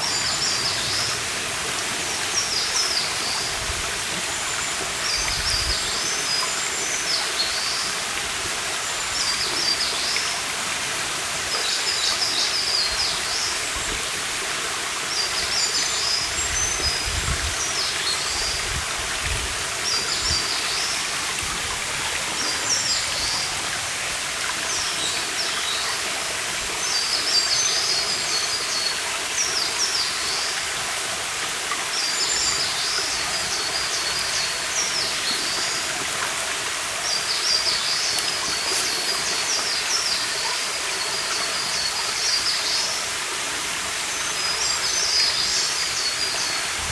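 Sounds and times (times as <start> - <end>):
stream running: 0.0 - 46.9
songbird singing: 37.0 - 42.9.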